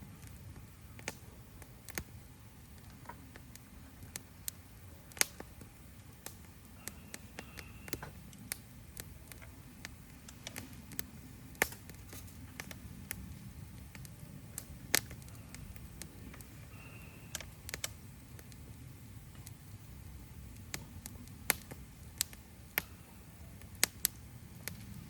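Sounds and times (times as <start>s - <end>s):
low steady rumble: 0.0s - 25.0s
wood fire crackling and popping: 0.0s - 25.0s.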